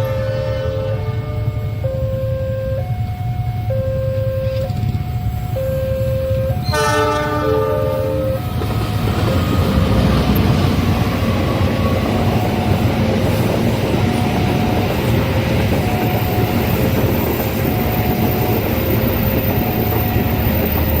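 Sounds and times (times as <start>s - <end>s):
train horn chord: 0.0s - 2.8s, 6.6s - 8.4s
train rumble and wheel clatter: 0.0s - 21.0s
two-note crossing alarm: 0.7s - 8.5s.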